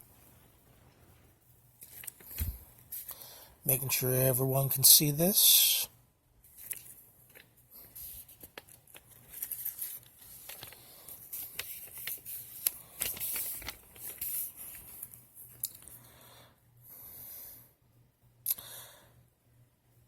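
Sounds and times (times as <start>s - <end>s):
pages turning: 1.8s - 3.2s, 6.5s - 16.0s
paper rustling: 1.8s - 3.2s, 6.5s - 15.9s.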